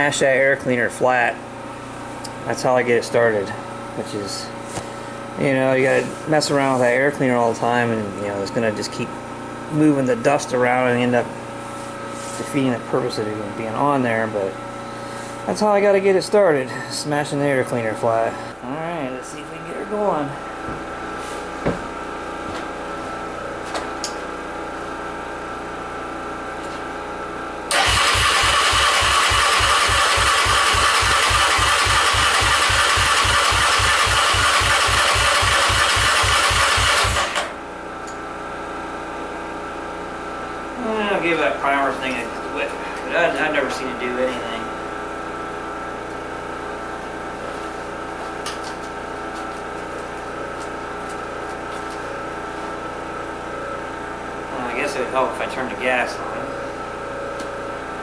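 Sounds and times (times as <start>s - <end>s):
steady hum with fixed tones: 0.0s - 58.0s
engine idling: 27.7s - 37.7s.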